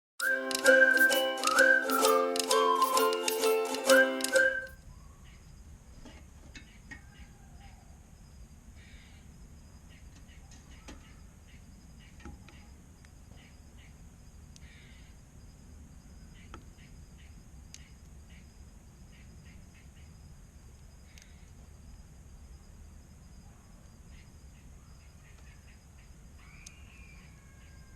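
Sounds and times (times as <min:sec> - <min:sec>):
short bird chirps: 0:26.4 - 0:27.9.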